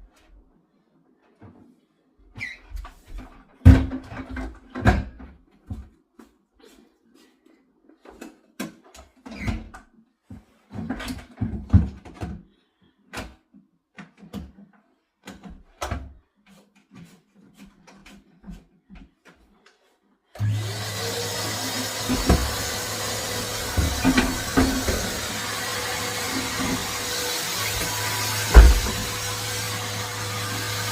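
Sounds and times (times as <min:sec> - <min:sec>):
vacuum cleaner motor whirring: 0:20.4 - 0:30.9
vacuum cleaner handling knocks: 0:22.0 - 0:27.1, 0:27.8 - 0:29.3.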